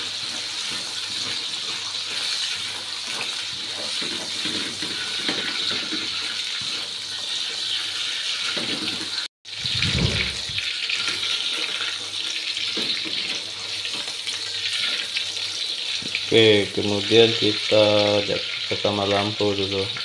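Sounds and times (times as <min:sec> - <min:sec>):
spatula scraping a wok: 0:00.0 - 0:15.6
food sizzling in hot oil: 0:00.0 - 0:20.0.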